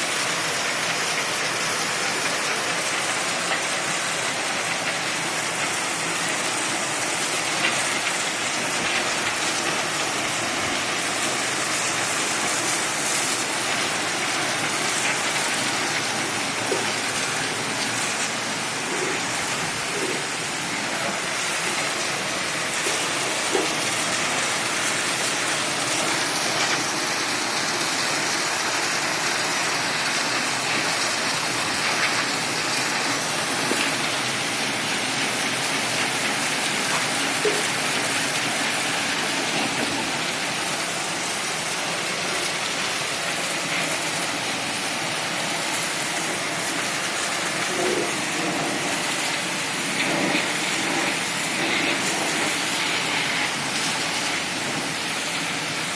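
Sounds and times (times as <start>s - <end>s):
pressure washer water jet spraying: 0.0s - 55.9s.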